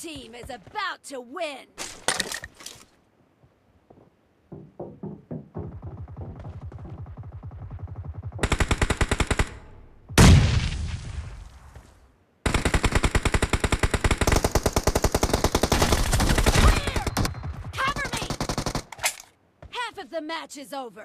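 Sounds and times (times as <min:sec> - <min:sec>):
video game automatic gunfire: 0:06.0 - 0:09.6, 0:12.5 - 0:18.9.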